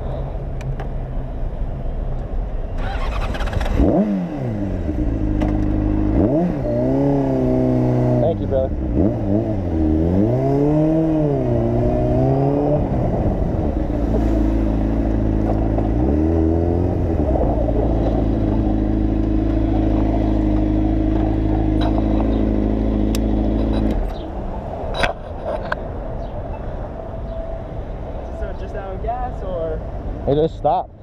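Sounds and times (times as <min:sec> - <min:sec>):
motorcycle engine revving: 0:02.8 - 0:24.2.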